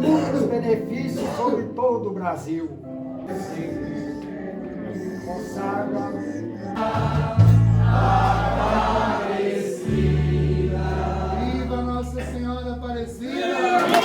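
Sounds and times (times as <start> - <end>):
voices singing a hymn: 3.1 - 14.0
held low bass notes: 6.8 - 9.2, 9.9 - 13.2.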